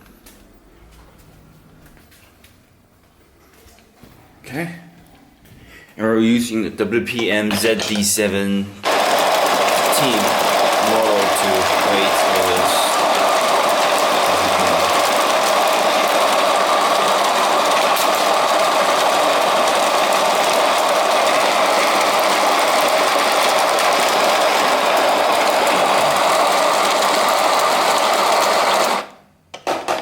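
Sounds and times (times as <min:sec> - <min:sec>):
electric coffee grinder grinding: 0:08.8 - 0:30.0.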